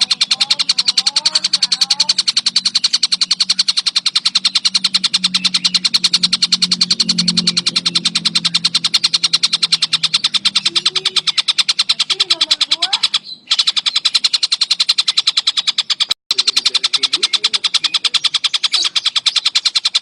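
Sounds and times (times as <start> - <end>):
kingfisher rattling call: 0.0 - 20.0.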